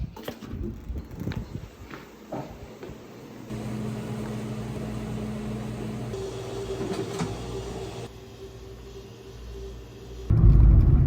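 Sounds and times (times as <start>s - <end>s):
low machine hum: 3.5s - 10.3s.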